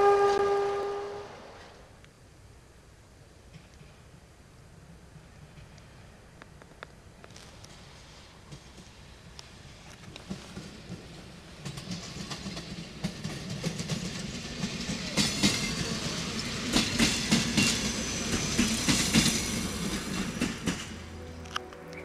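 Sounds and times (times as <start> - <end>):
diesel railcar engine drone: 0.0 - 22.0
wheels clacking over rail joints: 5.2 - 22.0.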